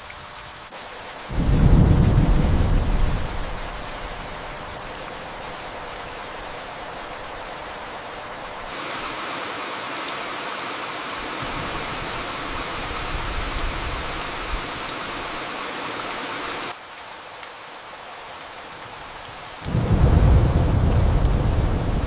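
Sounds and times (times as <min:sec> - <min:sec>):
steady rain hiss: 0:00.0 - 0:22.0
raindrop ticks: 0:19.6 - 0:22.0.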